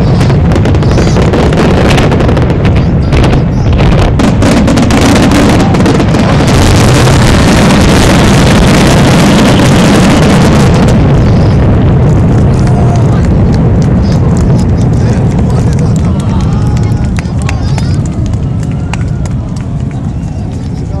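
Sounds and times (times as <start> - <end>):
fireworks bursting: 0.0 - 21.0.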